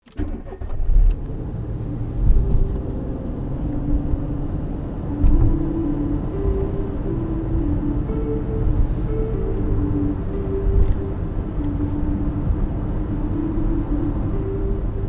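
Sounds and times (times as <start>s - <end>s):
loud low rumble: 1.1s - 15.0s
faint sustained music notes: 1.3s - 15.0s.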